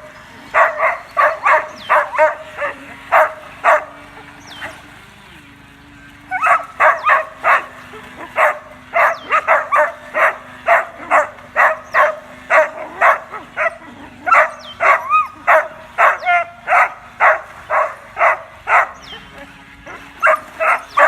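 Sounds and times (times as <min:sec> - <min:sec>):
dog barking: 0:00.5 - 0:04.0, 0:06.4 - 0:07.7, 0:08.3 - 0:19.0, 0:19.9 - 0:21.0
dog whining: 0:12.6 - 0:16.8.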